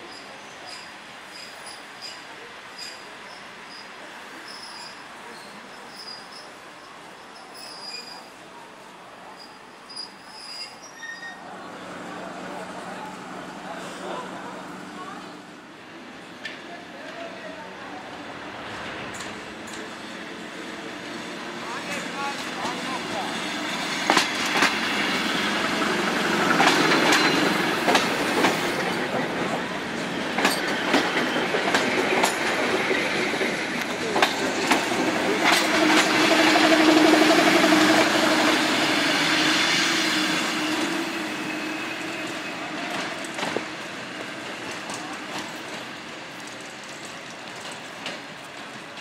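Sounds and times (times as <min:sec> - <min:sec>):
train wheels clicking over rail joints: 0:23.6 - 0:38.6, 0:42.0 - 0:49.0.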